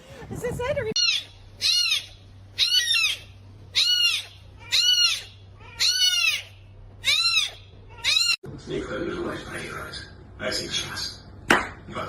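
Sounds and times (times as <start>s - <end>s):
cat meowing: 1.0s - 8.4s.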